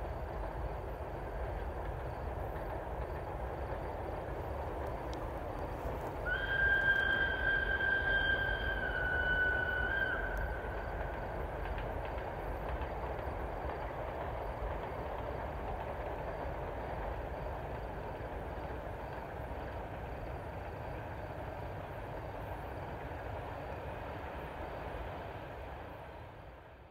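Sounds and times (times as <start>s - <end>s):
train rumbling on rails: 0.0s - 26.9s
train horn: 6.2s - 10.7s.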